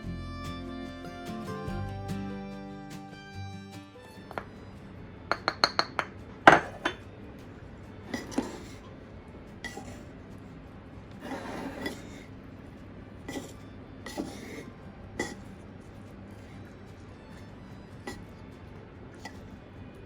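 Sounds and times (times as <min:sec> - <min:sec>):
utensil scraping a bowl: 0:05.3 - 0:07.0, 0:08.0 - 0:08.9, 0:09.6 - 0:10.2, 0:11.1 - 0:12.5, 0:13.2 - 0:18.4, 0:19.2 - 0:19.6.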